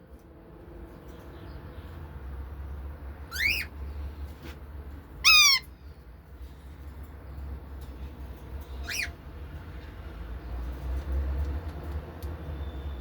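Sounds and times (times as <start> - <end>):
pet bird squawking: 3.3 - 3.7, 5.2 - 5.7, 8.8 - 9.2.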